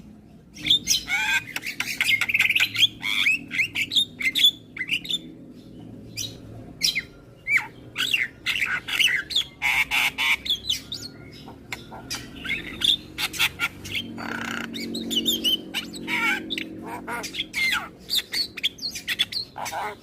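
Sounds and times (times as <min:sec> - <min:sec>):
harsh rasping squawks: 0:07.5 - 0:20.0.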